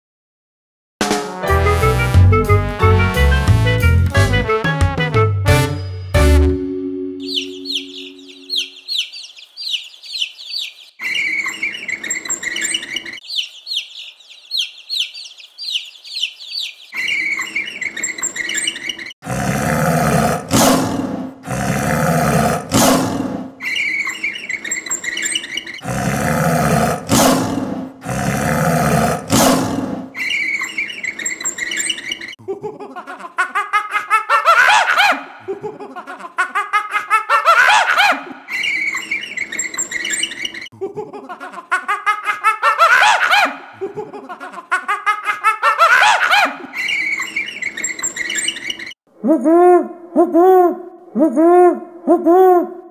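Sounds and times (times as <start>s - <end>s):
monkeys chattering: 7.2s - 19.2s, 22.4s - 27.4s, 28.0s - 52.6s
monkeys harsh calls: 7.3s - 19.1s, 22.3s - 27.6s, 29.0s - 32.4s, 33.9s - 35.4s, 36.6s - 40.7s, 41.9s - 43.8s, 44.9s - 52.6s
monkeys screeching: 7.3s - 19.2s, 23.6s - 25.8s, 30.1s - 32.4s, 34.1s - 35.3s, 36.9s - 40.7s, 42.1s - 43.8s, 45.1s - 49.0s.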